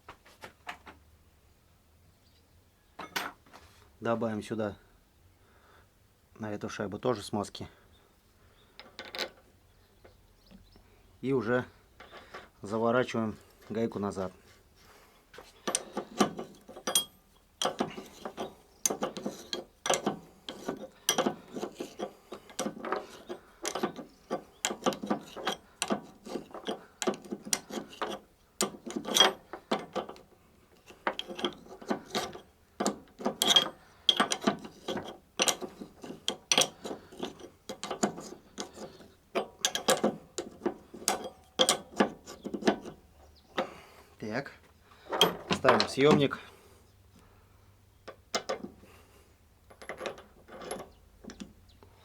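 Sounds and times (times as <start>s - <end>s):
small metallic ratchet clicks: 30.8s - 42.4s.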